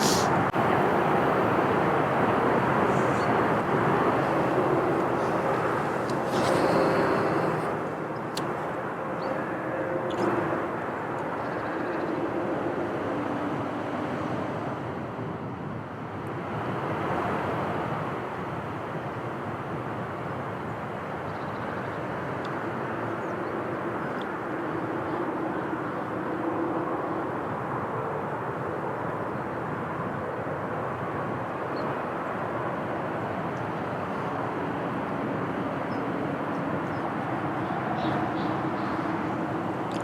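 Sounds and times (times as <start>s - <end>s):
outdoor rumble: 0.0s - 10.8s
faint engine drone: 0.0s - 15.0s, 20.0s - 40.0s.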